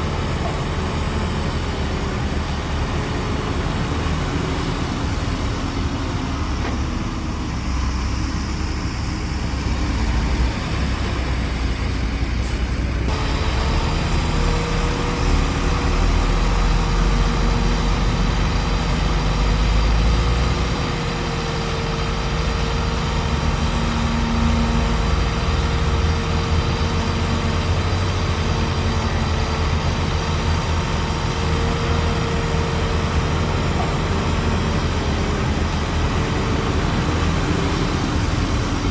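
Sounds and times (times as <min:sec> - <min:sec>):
diesel engine rumble: 0:00.0 - 0:38.9
steady machine whine: 0:13.1 - 0:18.6.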